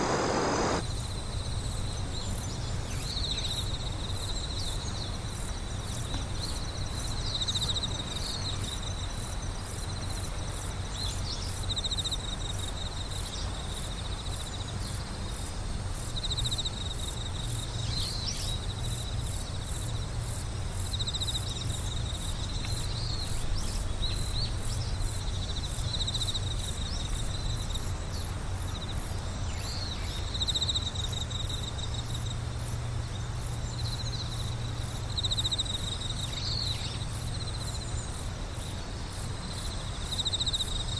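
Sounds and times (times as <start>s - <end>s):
crickets trilling: 0.0s - 0.8s
high fast insect pulsing: 0.0s - 0.8s
steady low rumble: 0.0s - 0.8s.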